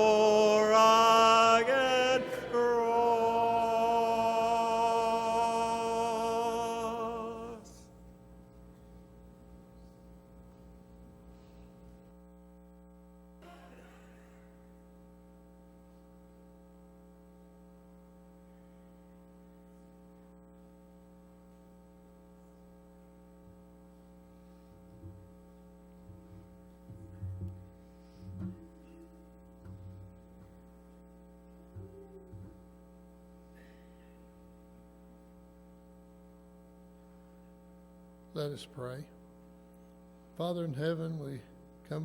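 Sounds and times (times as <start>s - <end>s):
electrical mains hum: 0.0s - 42.0s.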